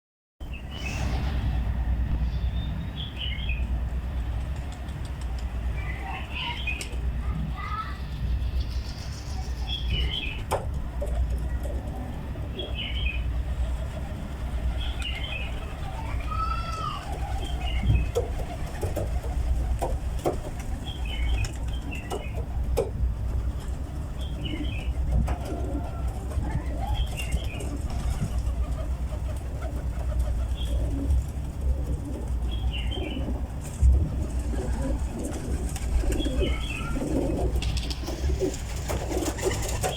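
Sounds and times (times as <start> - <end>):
steady low rumble: 0.4 - 39.9
pigeon wings flapping: 4.4 - 5.7, 13.2 - 39.9
pigeon cooing: 24.2 - 39.9.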